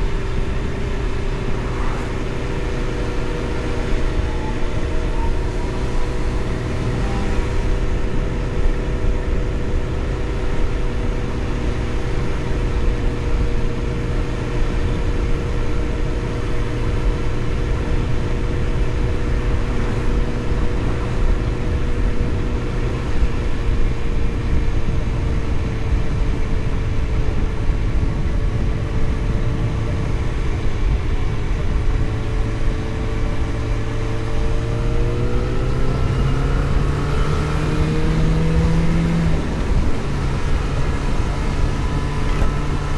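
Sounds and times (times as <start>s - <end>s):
road and wind rumble: 0.0s - 42.9s
vehicle engine cruising: 0.0s - 42.9s.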